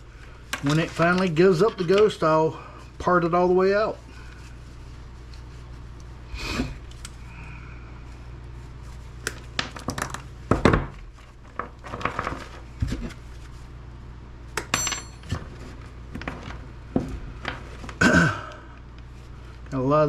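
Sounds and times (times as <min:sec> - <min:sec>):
scrap clattering and clinking: 0:14.7 - 0:16.6.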